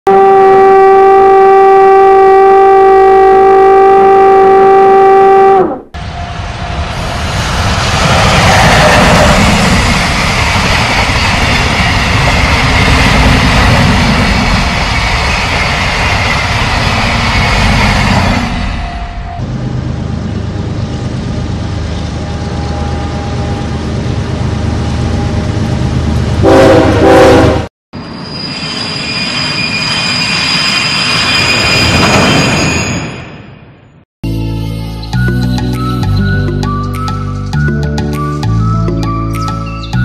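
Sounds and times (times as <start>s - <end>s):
train horn: 0.1s - 6.3s, 26.4s - 27.7s
train running noise: 6.0s - 33.5s.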